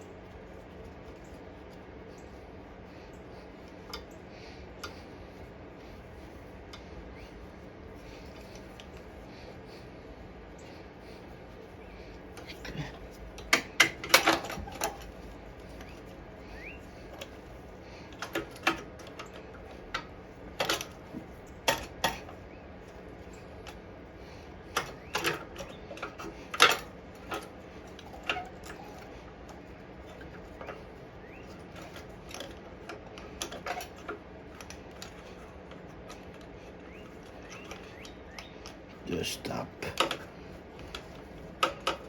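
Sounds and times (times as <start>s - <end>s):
clicks and metallic taps of tools: 39.9s - 42.0s.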